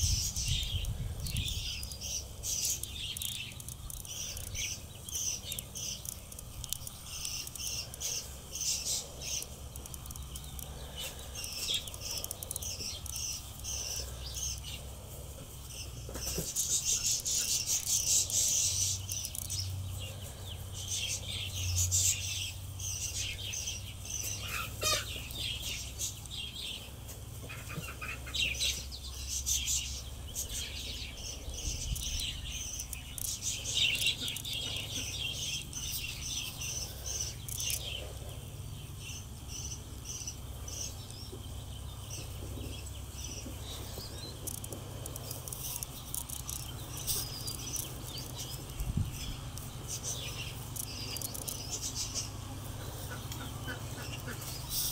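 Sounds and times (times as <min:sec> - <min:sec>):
small birds chirping: 0:00.0 - 0:54.9
steady low rumble: 0:29.9 - 0:54.7.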